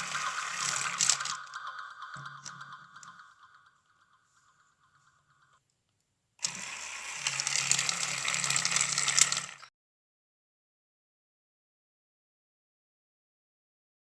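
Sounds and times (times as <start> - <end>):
small grinder motor rattling: 0.0 - 3.8, 6.4 - 9.7.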